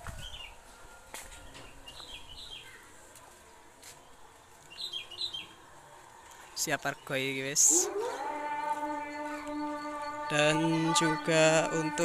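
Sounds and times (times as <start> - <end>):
faint outdoor background noise: 0.0 - 12.0
bird chirping: 4.7 - 5.6.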